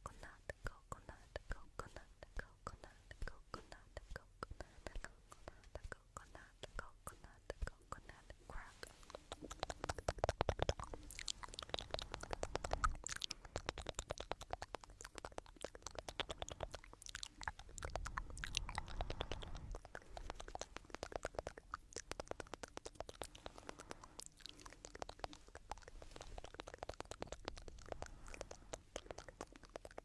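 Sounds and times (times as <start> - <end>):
soft low rumble: 16.6 - 21.1.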